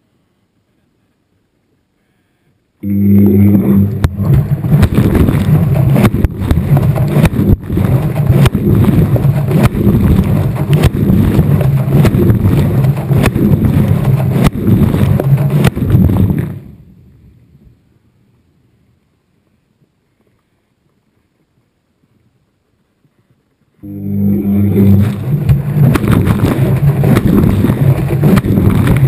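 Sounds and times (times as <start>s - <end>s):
washing machine motor hum: 2.8s - 16.6s, 23.8s - 29.0s.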